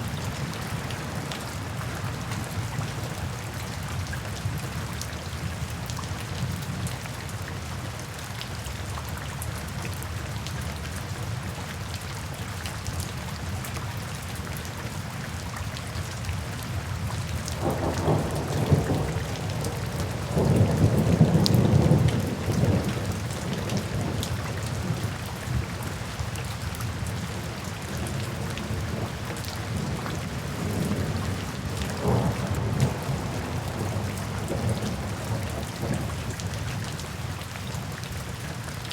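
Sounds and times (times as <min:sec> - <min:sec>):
steady rain: 0:00.0 - 0:38.9
thunder rumbling: 0:17.6 - 0:25.0, 0:29.7 - 0:36.4.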